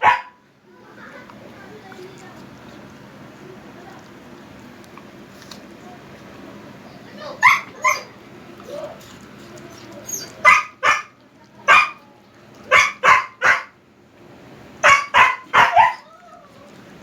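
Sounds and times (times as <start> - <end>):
dog barking and yipping: 0.0 - 0.4, 7.4 - 8.2, 10.1 - 12.0, 12.7 - 13.8, 14.8 - 16.1
dog whining: 7.4 - 8.1, 9.8 - 11.0.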